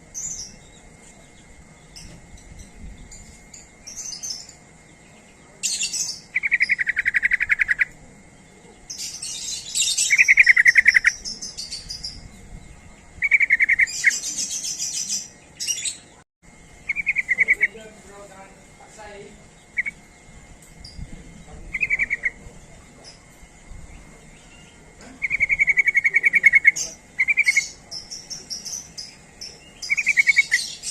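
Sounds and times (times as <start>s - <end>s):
bird rattling trills: 5.6s - 8.0s, 8.8s - 15.9s, 16.7s - 30.9s
scratchy high bird chattering: 5.6s - 8.0s, 8.9s - 12.2s, 13.2s - 15.8s, 16.9s - 17.8s, 19.6s - 20.0s, 21.7s - 22.4s, 24.6s - 30.9s.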